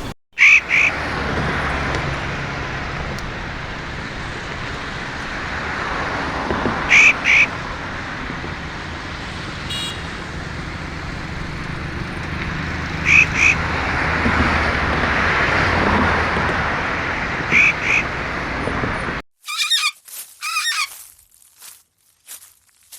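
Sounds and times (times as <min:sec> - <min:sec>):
sharp bird calls: 0:00.0 - 0:01.1, 0:06.9 - 0:07.7, 0:12.9 - 0:13.8, 0:17.4 - 0:18.2, 0:19.5 - 0:21.0
loud rushing background noise: 0:10.1 - 0:19.2.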